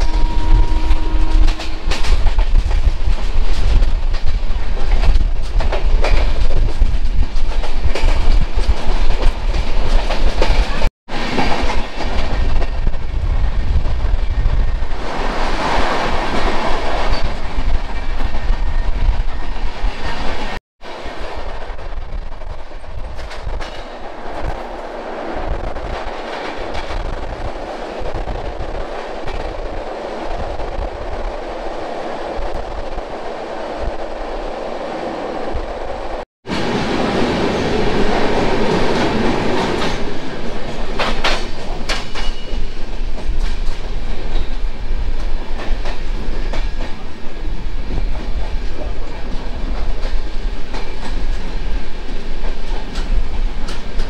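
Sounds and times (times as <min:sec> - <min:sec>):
train rumble: 0:00.0 - 0:54.0
wheels clacking over rail joints: 0:36.5 - 0:47.0.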